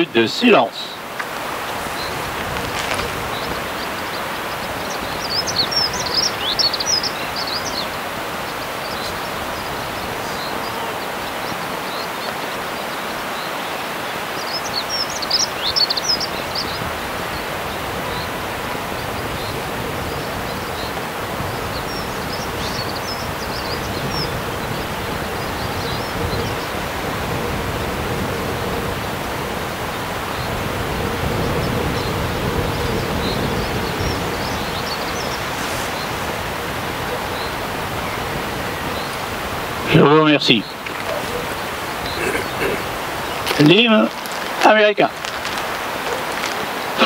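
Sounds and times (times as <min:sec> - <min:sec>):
outdoor background hiss: 0:00.0 - 0:47.0
small bird singing high chirps: 0:03.2 - 0:16.8.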